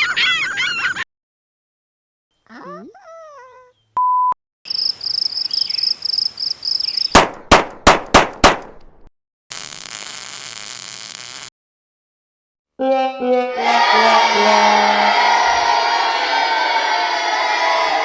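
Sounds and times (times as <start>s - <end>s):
loud sharp bangs: 7.2s - 8.7s
high chirping trill: 12.8s - 15.7s.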